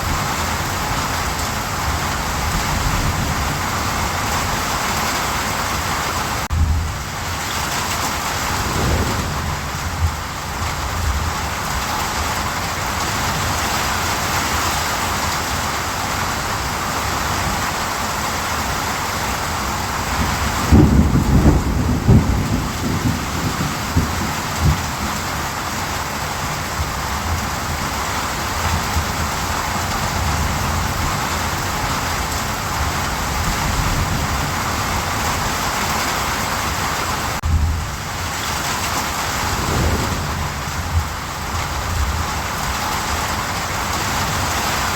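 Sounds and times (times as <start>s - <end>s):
steady rain hiss: 0.0s - 44.9s
low thunder rumble: 6.5s - 13.6s, 19.3s - 35.6s, 37.4s - 44.5s.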